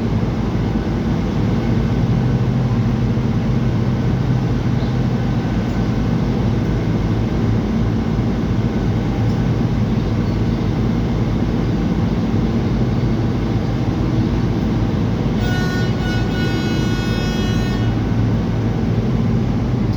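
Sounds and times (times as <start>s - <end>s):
ferry engine drone: 0.0s - 19.9s
ferry horn: 15.3s - 19.1s.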